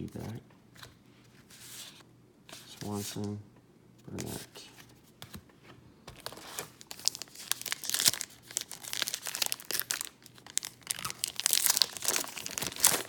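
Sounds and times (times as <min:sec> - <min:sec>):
wrapper tearing and crinkling: 0:06.2 - 0:13.0.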